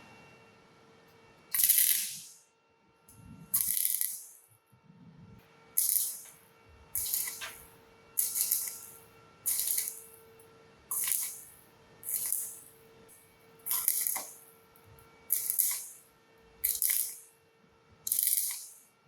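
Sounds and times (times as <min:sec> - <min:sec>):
welding arc crackling hiss: 0:01.5 - 0:02.4, 0:03.1 - 0:04.4, 0:05.8 - 0:10.2, 0:10.9 - 0:17.3, 0:18.1 - 0:18.9.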